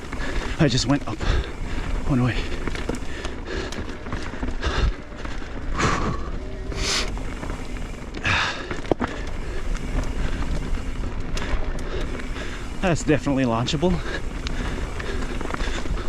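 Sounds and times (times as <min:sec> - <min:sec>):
bike clicks and rattles: 0:00.0 - 0:16.0
bike tyres rumbling on dirt: 0:00.0 - 0:16.0
rider breathing hard: 0:00.0 - 0:16.0
wind noise: 0:00.0 - 0:16.0.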